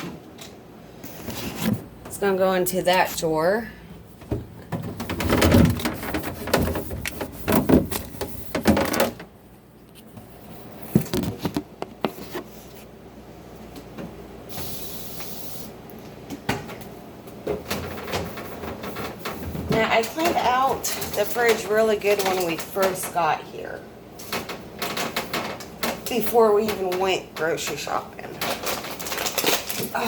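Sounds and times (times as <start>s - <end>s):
plastic containers clattering: 4.1s - 9.3s, 24.2s - 30.0s.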